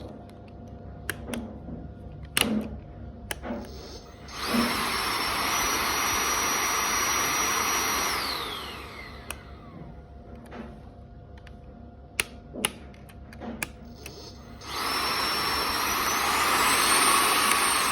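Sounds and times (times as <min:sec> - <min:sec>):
vacuum motor whining: 0:03.6 - 0:10.6, 0:14.0 - 0:17.9.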